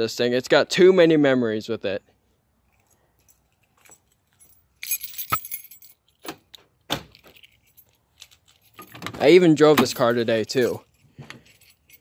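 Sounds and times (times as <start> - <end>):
keys jangling: 2.7 - 12.0.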